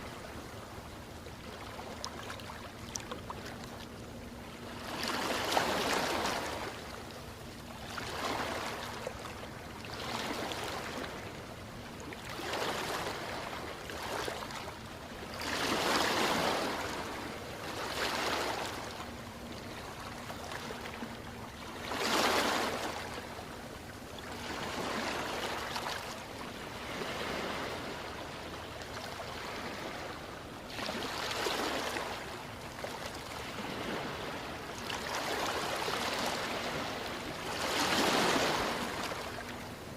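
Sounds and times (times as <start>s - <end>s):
waves breaking: 0.0s - 39.9s.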